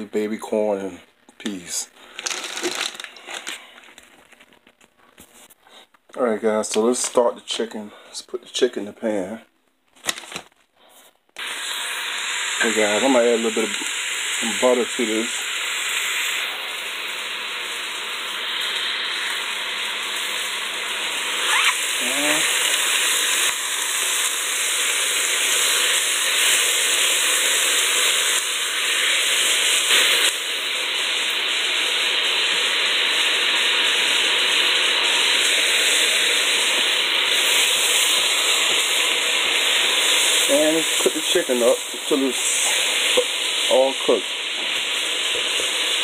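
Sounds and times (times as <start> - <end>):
chicken sizzling in a pan: 11.4 - 46.0.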